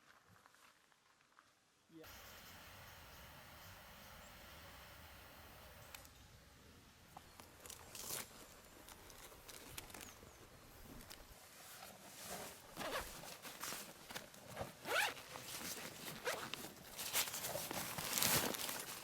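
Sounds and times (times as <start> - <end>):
zipper being pulled: 12.3 - 13.4, 14.5 - 16.6.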